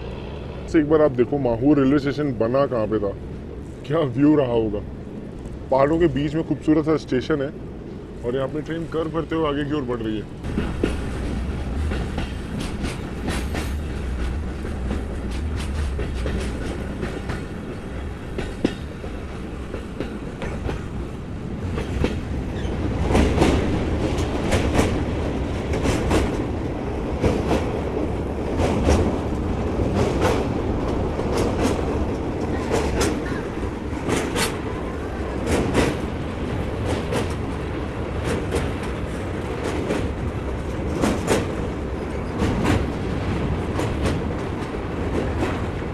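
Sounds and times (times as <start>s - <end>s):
train rumbling: 0.0s - 45.9s
train wheels clacking over rail joints: 10.4s - 45.9s.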